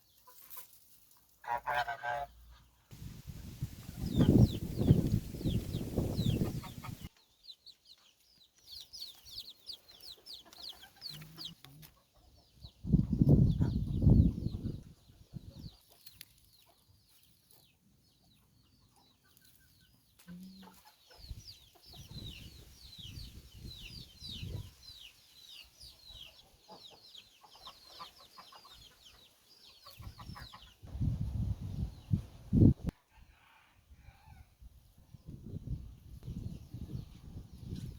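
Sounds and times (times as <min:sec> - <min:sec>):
chickens clucking: 0:00.1 - 0:02.8, 0:03.4 - 0:08.2, 0:08.8 - 0:30.9.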